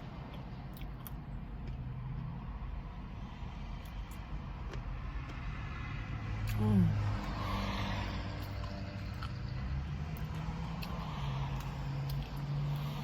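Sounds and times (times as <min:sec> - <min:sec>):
vehicles passing: 0:00.0 - 0:13.0
car interior motor hum: 0:03.9 - 0:13.0.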